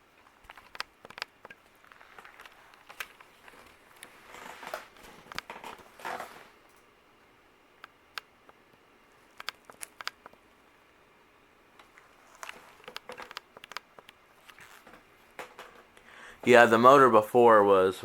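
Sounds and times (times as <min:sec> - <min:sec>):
ceiling fan hum: 0:00.0 - 0:18.0.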